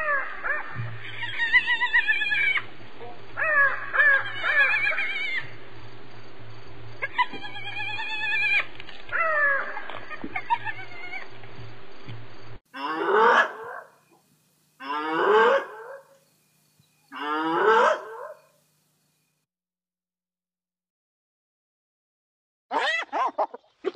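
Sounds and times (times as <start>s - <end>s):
hyena wavering calls: 3.4s - 5.5s, 12.8s - 14.1s, 14.8s - 16.2s, 17.1s - 18.6s
hyena whooping calls: 3.4s - 5.5s, 17.6s - 18.5s.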